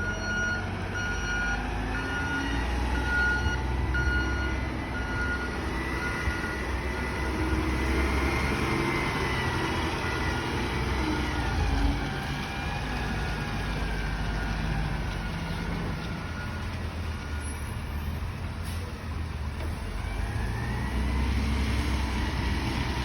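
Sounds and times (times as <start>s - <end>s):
diesel truck engine rumbling: 0.0s - 23.0s.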